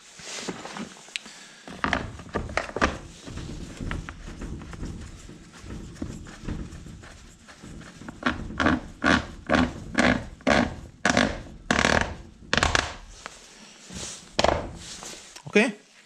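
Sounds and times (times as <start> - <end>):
rubbing or scraping strokes: 2.0 - 15.4.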